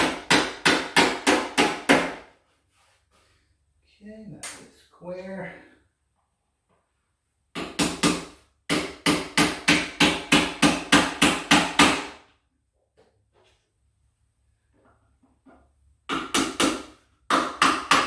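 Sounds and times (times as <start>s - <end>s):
hammer striking wood: 0.0s - 2.3s, 7.6s - 12.2s, 16.1s - 18.0s.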